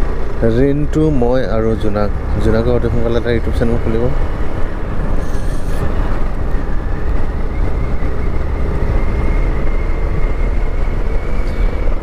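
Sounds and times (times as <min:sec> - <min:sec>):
motorcycle engine and road rumble: 0:00.0 - 0:12.0
wind noise on microphone: 0:04.2 - 0:12.0.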